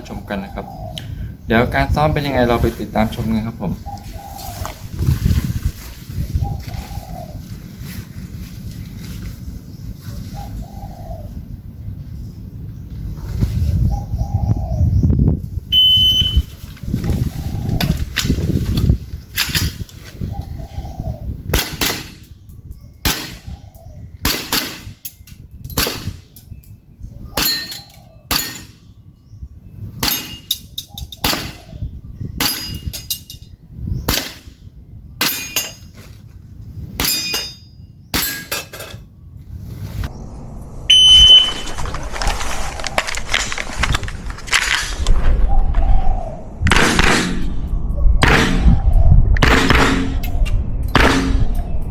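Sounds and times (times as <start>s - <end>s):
rustling noise: 3.9s - 10.7s, 12.9s - 14.0s, 15.4s - 21.2s, 35.8s - 36.9s, 39.4s - 40.1s, 40.9s - 46.0s
short beep: 15.7s - 16.5s, 40.9s - 41.7s
airsoft gun shots: 24.3s - 25.0s, 46.7s - 48.8s, 49.4s - 51.7s
steel target plate clanging: 27.4s - 28.8s, 30.0s - 31.6s, 35.2s - 35.9s, 37.0s - 39.0s, 49.4s - 50.4s, 51.0s - 51.7s.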